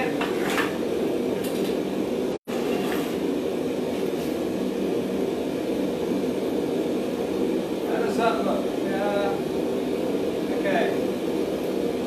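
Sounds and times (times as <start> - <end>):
forge roaring: 0.0 - 12.0.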